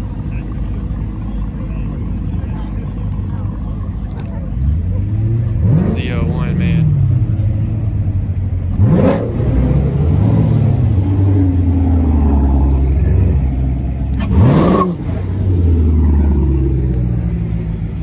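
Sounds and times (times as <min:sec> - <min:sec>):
car engine idling: 0:00.0 - 0:18.0
car engine revving: 0:00.2 - 0:18.0.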